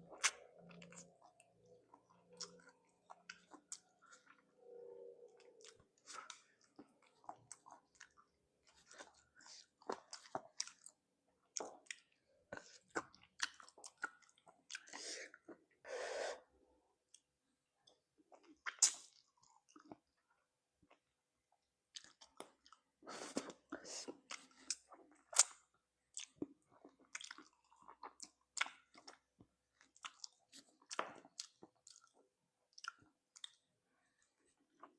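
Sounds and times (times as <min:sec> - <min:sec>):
person chewing with wet smacks: 0:00.0 - 0:04.6, 0:05.2 - 0:15.8, 0:17.1 - 0:34.9.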